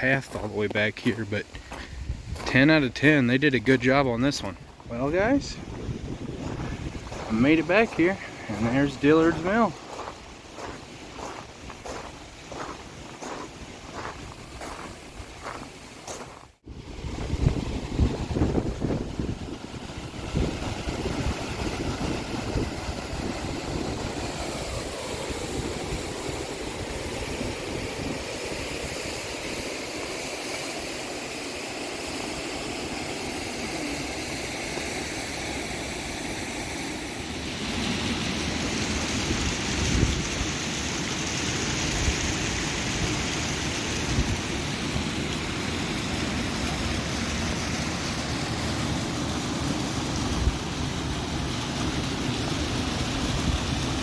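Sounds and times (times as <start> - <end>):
wind buffeting microphone: 1.7 - 3.0, 4.5 - 15.6, 16.7 - 28.4
steady rushing noise: 2.0 - 27.5.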